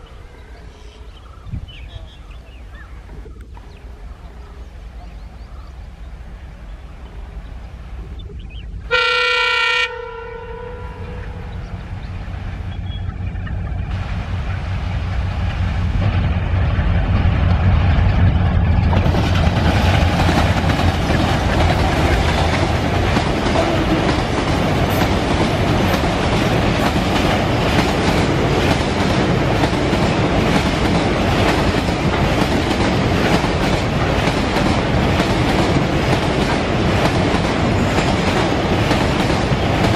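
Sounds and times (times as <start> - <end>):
diesel locomotive rumble: 1.3 - 39.9
train horn blast: 8.9 - 11.6
train wheels clickety-clack: 12.3 - 39.9.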